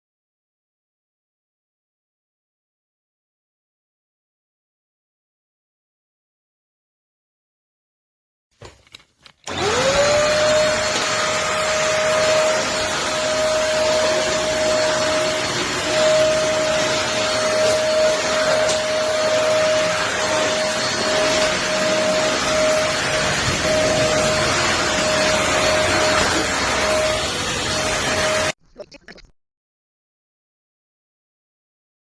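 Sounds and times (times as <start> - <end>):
vacuum cleaner motor whining: 9.4 - 28.5.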